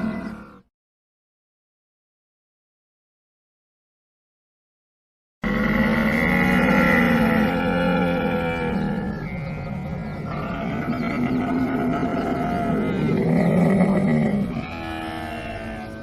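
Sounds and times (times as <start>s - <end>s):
camel calling: 0.0s - 0.6s, 5.4s - 16.0s.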